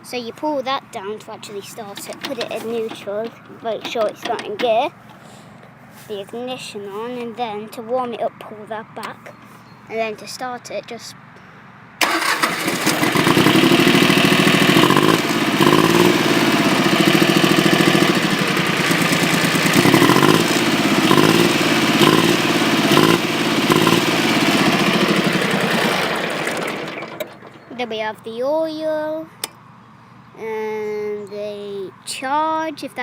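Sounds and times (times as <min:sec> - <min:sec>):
tractor engine starting and idling: 0:01.4 - 0:06.1, 0:12.0 - 0:27.9.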